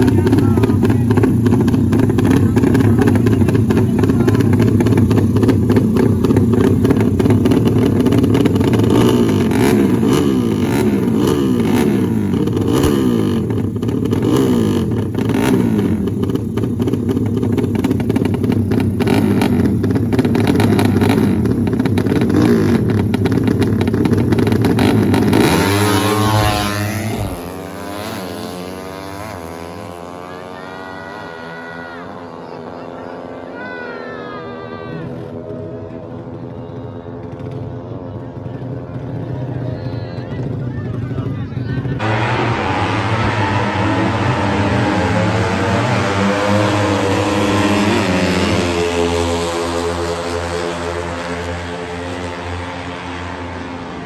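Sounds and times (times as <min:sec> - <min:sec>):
motorcycle engines revving: 0:00.0 - 0:54.0.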